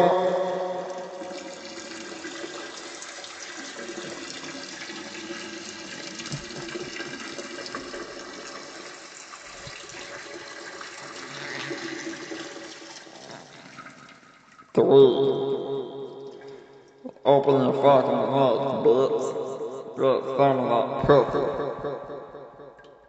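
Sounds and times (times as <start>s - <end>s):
water running: 0.0s - 14.8s.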